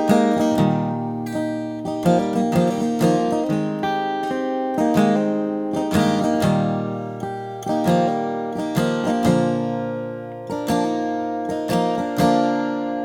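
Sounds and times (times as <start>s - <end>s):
acoustic guitar chords strummed: 0.0s - 13.0s.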